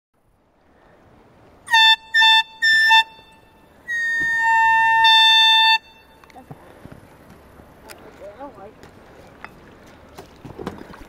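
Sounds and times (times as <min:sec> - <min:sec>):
safety whistle blasts: 0:01.7 - 0:06.2.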